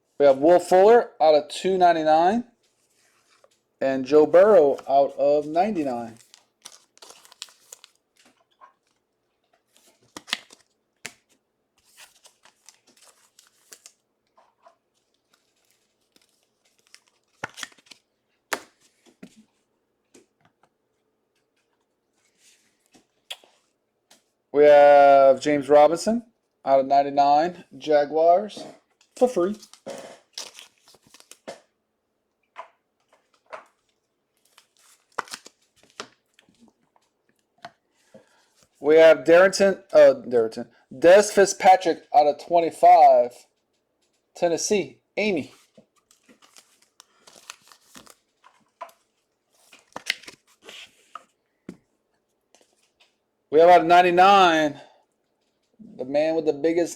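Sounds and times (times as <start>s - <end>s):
plastic packaging crinkling and tearing: 5.7s - 9.0s, 9.7s - 18.8s, 29.6s - 31.5s, 33.3s - 36.7s, 45.9s - 51.0s.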